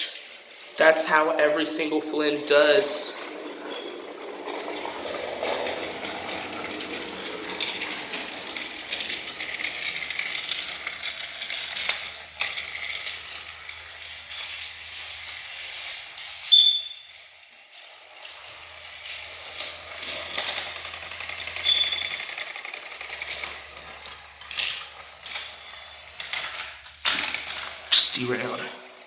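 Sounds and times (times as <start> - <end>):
toy train motor whirring: 0.0 - 29.0
wheels rattling on plastic track: 0.0 - 29.0
short high squeak: 16.5 - 17.1, 21.6 - 22.2.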